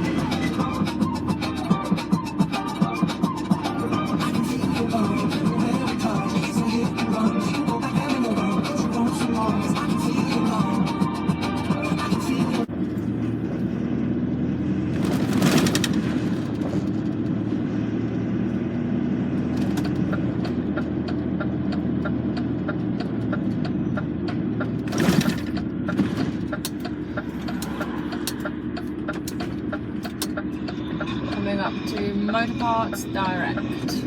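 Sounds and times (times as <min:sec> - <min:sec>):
rapid ticking: 0:00.0 - 0:12.7
lorry engine running: 0:00.0 - 0:34.0.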